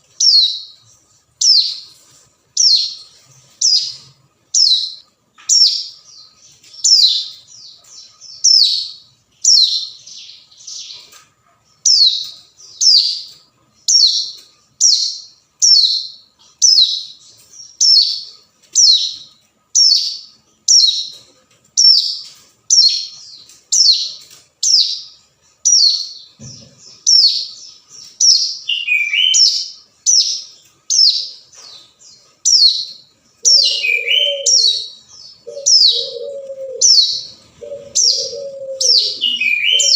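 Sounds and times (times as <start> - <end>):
bird calling with high notes: 28.2 - 30.3, 33.4 - 39.9.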